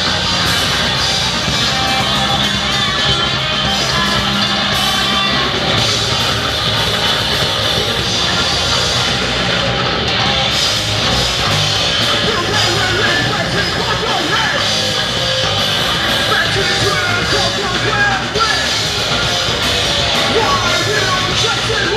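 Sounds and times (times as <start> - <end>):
heavy rock music with electric guitar: 0.0 - 21.9.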